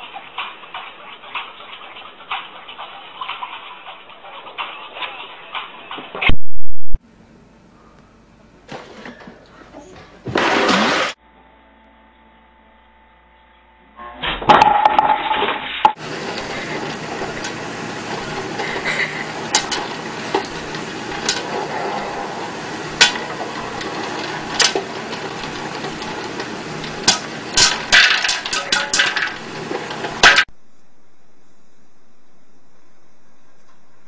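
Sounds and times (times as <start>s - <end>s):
hard objects clinking and knocking: 22.5s - 30.5s.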